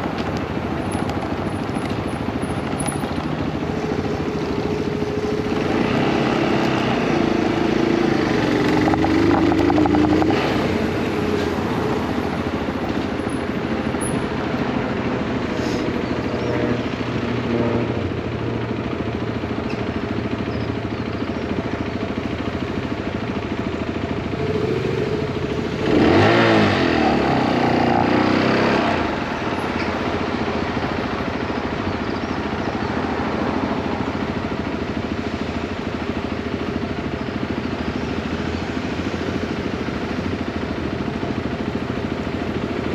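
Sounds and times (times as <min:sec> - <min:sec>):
motorcycle engine running: 0:00.0 - 0:42.9
engine sweeping up and down in pitch: 0:25.8 - 0:29.2.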